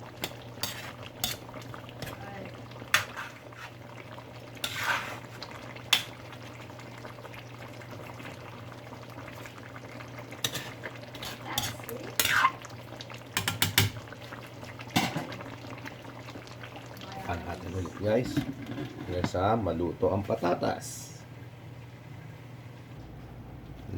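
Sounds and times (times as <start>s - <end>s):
metal utensil scraping a pot: 0.2s - 2.2s, 2.9s - 3.8s, 4.6s - 6.1s, 10.4s - 12.6s, 18.2s - 19.4s.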